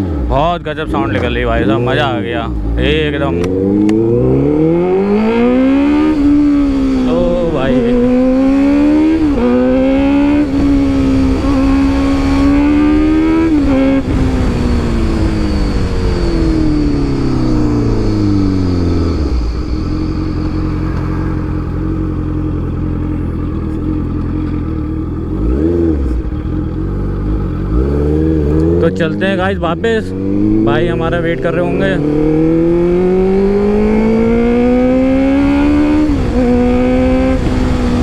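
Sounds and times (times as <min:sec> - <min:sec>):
motorcycle engine accelerating: 0:00.0 - 0:38.0.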